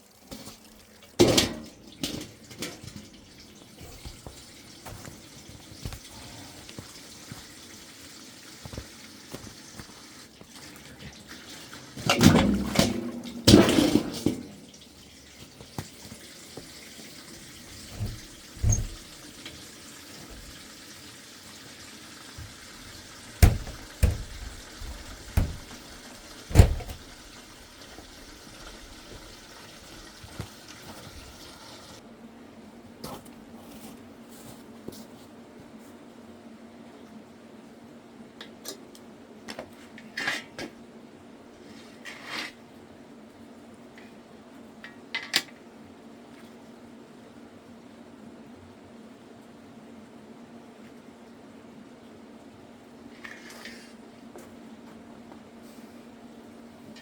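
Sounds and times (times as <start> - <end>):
water running: 0.0 - 32.0
sharp knocks: 23.4 - 25.9, 26.5 - 27.1
loud clattering: 23.4 - 27.2.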